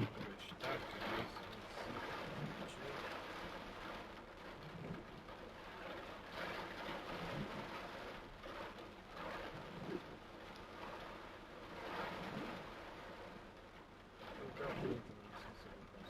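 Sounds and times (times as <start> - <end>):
torrential rain pouring: 0.0 - 16.0.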